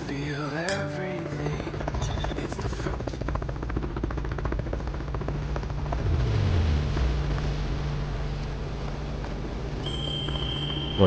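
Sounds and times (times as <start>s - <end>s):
helicopter engine and rotor: 0.9s - 6.0s
low hum gliding down: 1.0s - 11.0s.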